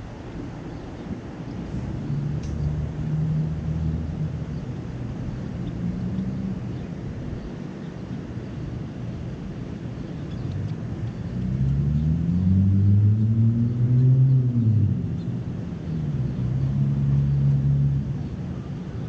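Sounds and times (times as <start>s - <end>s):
steady engine drone: 0.0s - 19.0s
vehicle engine droning past: 1.9s - 4.6s, 10.5s - 18.7s.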